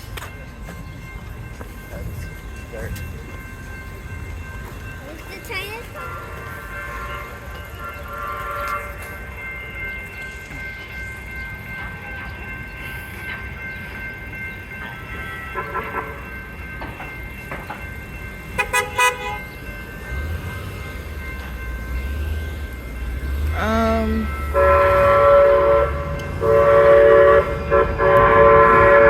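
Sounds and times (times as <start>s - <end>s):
train electric whine: 0.0s - 29.0s
train horn toots: 6.0s - 9.2s, 18.6s - 19.5s, 23.4s - 29.0s.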